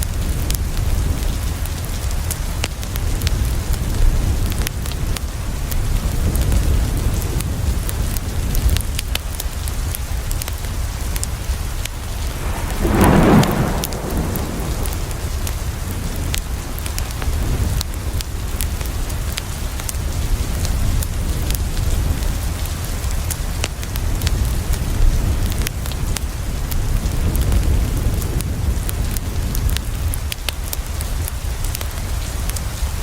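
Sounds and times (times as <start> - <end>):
rain on a window: 0.0 - 33.0
thunder rumble: 12.0 - 17.9
wood fire crackling: 12.0 - 21.8.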